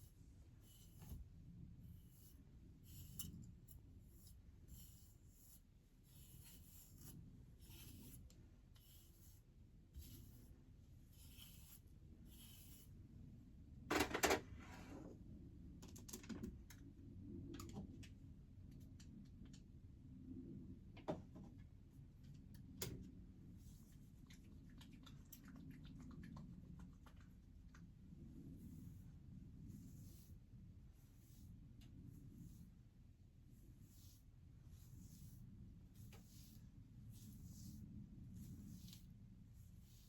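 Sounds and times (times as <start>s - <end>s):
faint rustling and handling noises: 20.8s - 40.0s.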